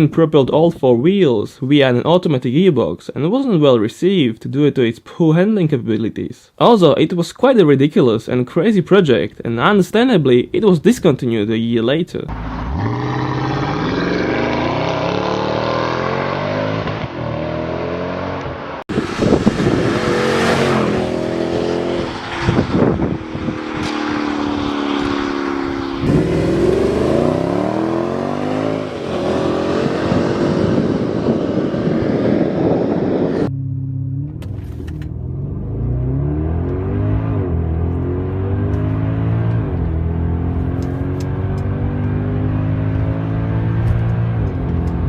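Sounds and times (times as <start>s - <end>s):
car engine revving: 12.3s - 45.0s.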